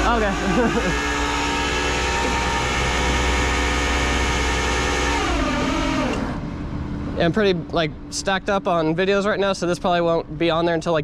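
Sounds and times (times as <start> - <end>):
truck engine humming: 0.0 - 11.0.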